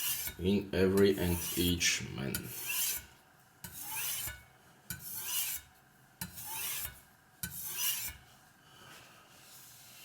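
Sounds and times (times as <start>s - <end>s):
knife scraping on sharpening stone: 0.0s - 0.4s, 1.0s - 1.7s, 2.3s - 8.2s.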